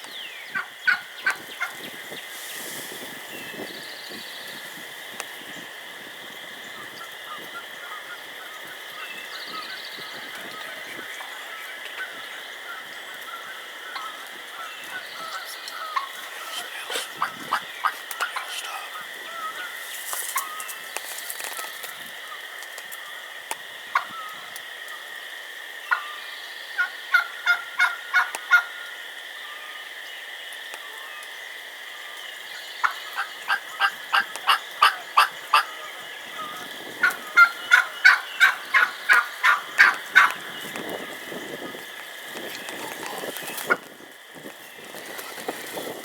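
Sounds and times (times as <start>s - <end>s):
turkey hen yelping: 11.5s - 19.8s, 32.8s - 40.5s.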